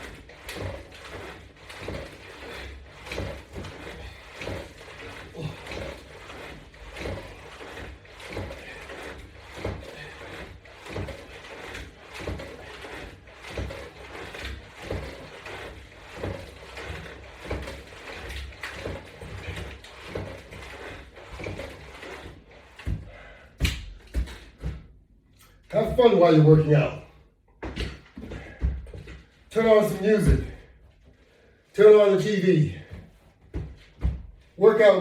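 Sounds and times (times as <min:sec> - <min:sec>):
resistance bands creaking and clicking: 0:00.0 - 0:24.7.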